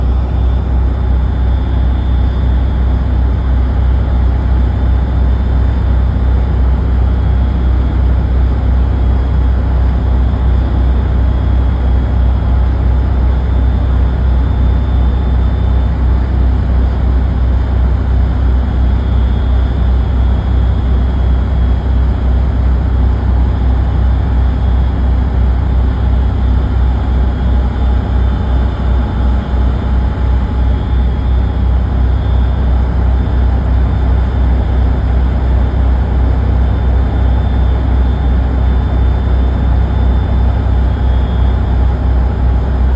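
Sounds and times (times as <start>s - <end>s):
diesel engine drone: 0.0s - 42.9s
faint high whine: 25.6s - 42.9s.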